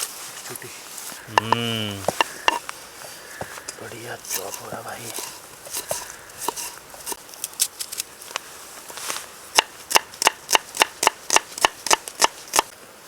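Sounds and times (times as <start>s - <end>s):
knife chopping onion on board: 1.3s - 2.6s.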